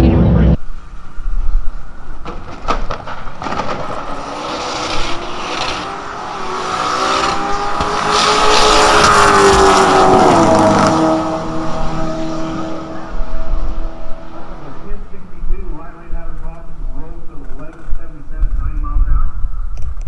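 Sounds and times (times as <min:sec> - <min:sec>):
car engine accelerating past: 0:02.0 - 0:15.2.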